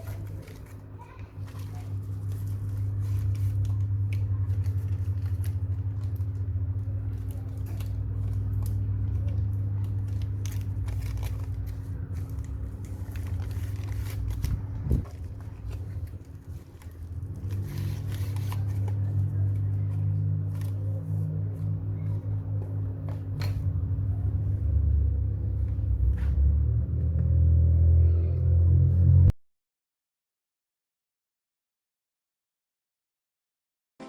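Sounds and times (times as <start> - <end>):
small clicks and scraping: 0.0 - 23.8
low electrical hum: 0.0 - 29.3.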